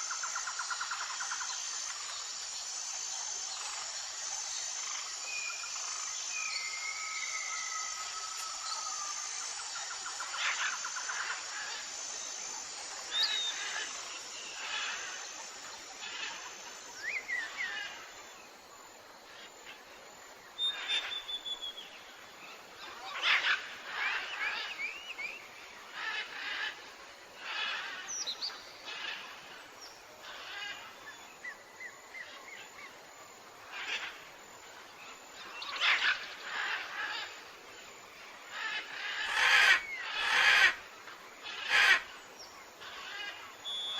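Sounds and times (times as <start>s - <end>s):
soft steady hiss: 0.0s - 43.9s
wild birds calling: 35.4s - 37.6s, 38.2s - 42.2s, 42.8s - 43.9s.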